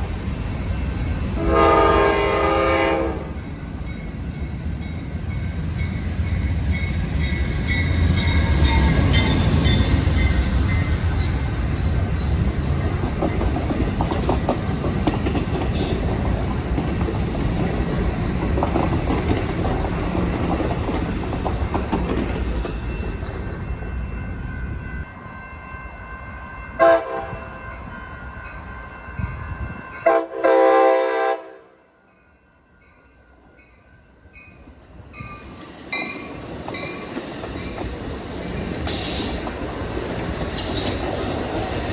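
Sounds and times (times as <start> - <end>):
passenger train rolling past: 0.0 - 41.9
second train rumbling: 0.0 - 41.9
train horn blasts: 1.4 - 3.5, 26.4 - 27.8, 30.0 - 32.0
wheels clacking over rail joints: 6.9 - 24.0.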